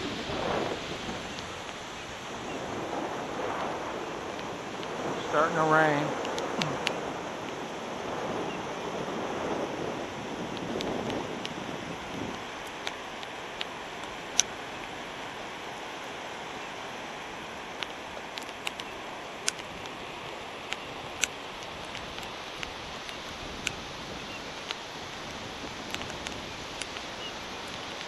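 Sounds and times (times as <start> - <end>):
light rain hiss: 0.0 - 28.0
raindrops ticking close by: 0.0 - 28.0.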